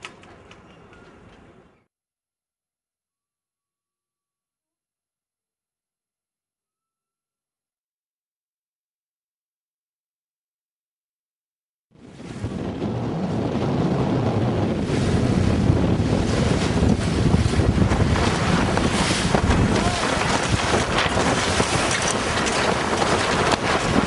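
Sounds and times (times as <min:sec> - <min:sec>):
water and waves rushing: 0:12.0 - 0:24.0
wind buffeting microphone: 0:12.0 - 0:24.0.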